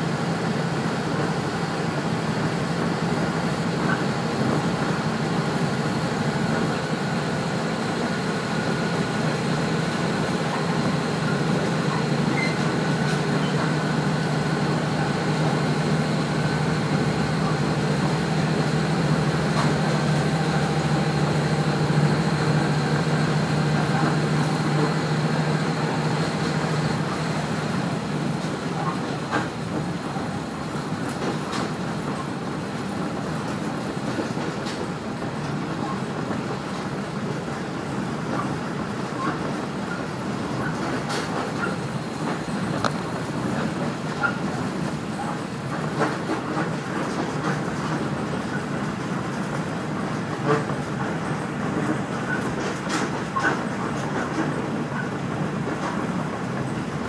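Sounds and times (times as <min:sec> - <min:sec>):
diesel railcar engine drone: 0:00.0 - 0:57.0
train wheels running on rails: 0:00.0 - 0:57.0.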